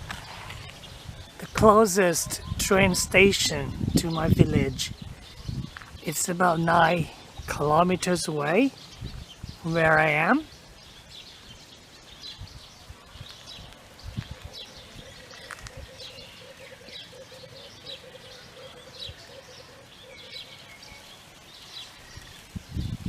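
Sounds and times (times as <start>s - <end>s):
birds chirping: 0.0s - 23.0s
low pulsing bird call: 14.3s - 23.0s.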